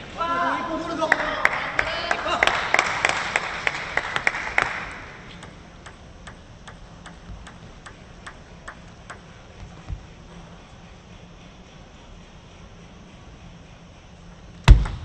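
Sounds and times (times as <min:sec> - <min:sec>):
applause: 0:01.1 - 0:05.0
table tennis ball bouncing: 0:05.2 - 0:10.2.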